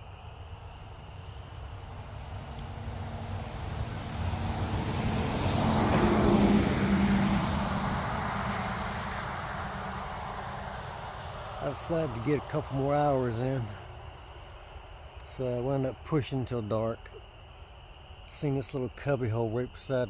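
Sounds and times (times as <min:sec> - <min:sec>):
car passing by: 0:00.6 - 0:14.4.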